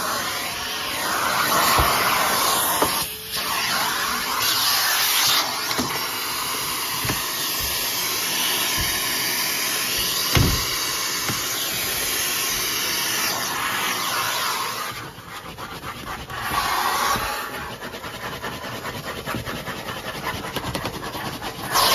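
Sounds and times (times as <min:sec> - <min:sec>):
vacuum cleaner suction hiss: 0:00.0 - 0:18.5, 0:21.3 - 0:21.9
vacuum tool knocking on surfaces: 0:01.5 - 0:03.0, 0:05.6 - 0:12.7.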